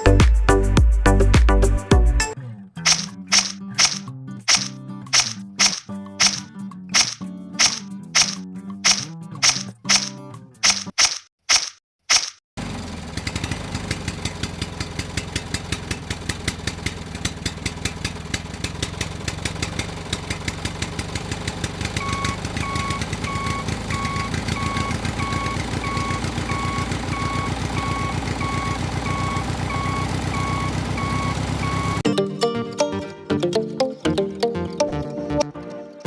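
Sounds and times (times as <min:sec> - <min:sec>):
tractor engine chugging: 0:02.9 - 0:06.4, 0:07.0 - 0:10.1, 0:12.6 - 0:32.0
reversing alarm beeping: 0:22.0 - 0:32.0.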